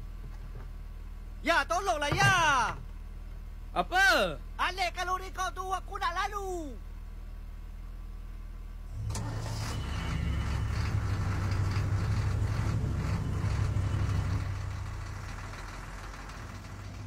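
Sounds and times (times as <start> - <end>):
car engine humming: 6.7 - 17.0.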